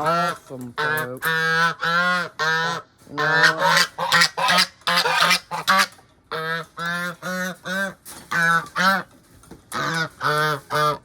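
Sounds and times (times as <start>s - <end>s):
geese honking: 0.0s - 9.1s, 9.7s - 11.0s.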